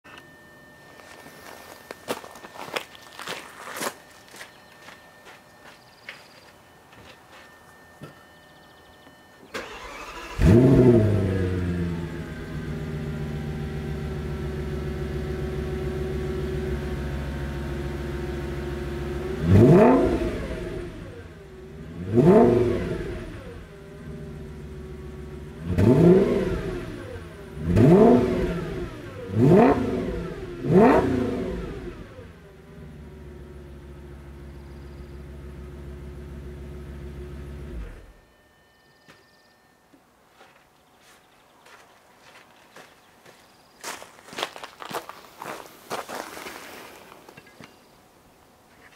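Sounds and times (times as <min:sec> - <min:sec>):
car engine starting and idling: 0:08.6 - 0:38.4
engine revving: 0:09.5 - 0:38.2.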